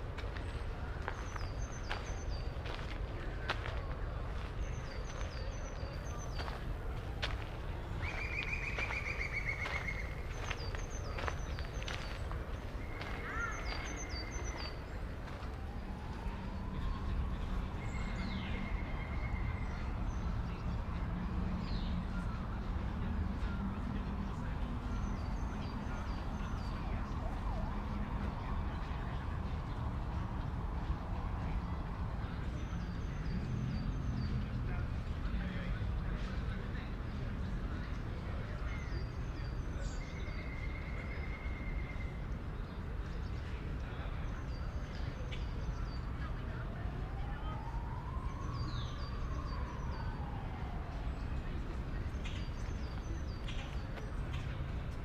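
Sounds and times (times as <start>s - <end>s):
distant traffic rumble: 0.0s - 55.0s
small birds chirping: 8.0s - 15.1s.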